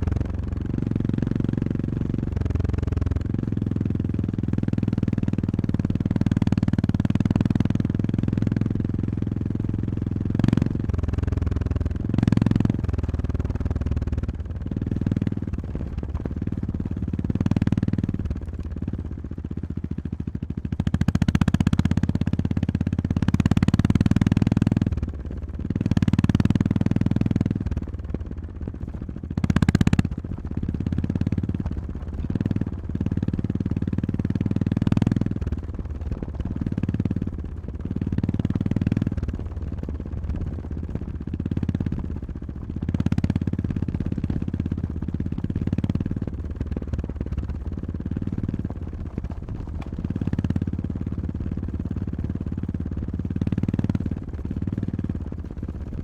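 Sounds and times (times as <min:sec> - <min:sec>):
motorcycle engine revving: 0:00.0 - 0:56.0
sharp knocks from rough road: 0:14.8 - 0:19.4, 0:35.0 - 0:56.0.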